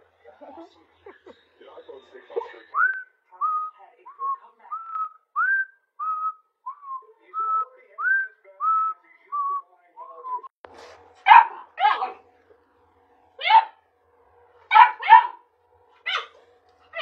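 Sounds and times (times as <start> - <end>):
dog barking: 11.2 - 12.2, 13.4 - 13.8, 14.7 - 15.4, 16.0 - 16.4.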